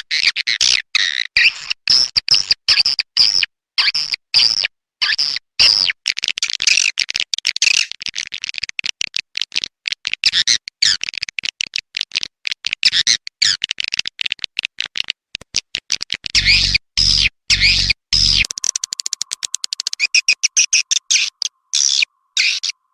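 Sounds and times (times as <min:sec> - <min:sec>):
low hum: 0:16.4 - 0:22.9
swiftlets chirping: 0:17.5 - 0:22.9.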